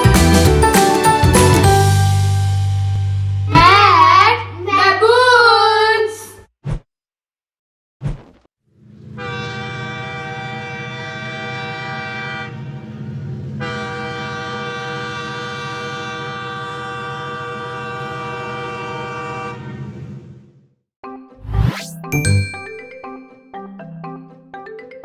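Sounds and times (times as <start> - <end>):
train horn blasts: 9.2 - 20.0.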